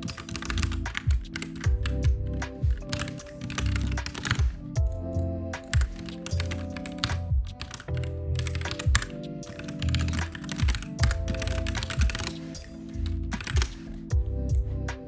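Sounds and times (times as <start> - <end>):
keyboard typing: 0.0 - 14.7
lofi music with low beat: 0.0 - 15.0.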